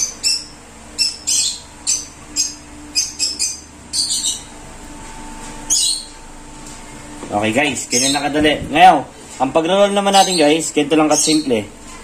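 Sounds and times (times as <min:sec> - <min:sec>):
small bird chirping: 0:00.0 - 0:04.6, 0:05.7 - 0:06.2, 0:07.9 - 0:08.3, 0:10.0 - 0:11.6
faint steady hum: 0:00.0 - 0:12.0.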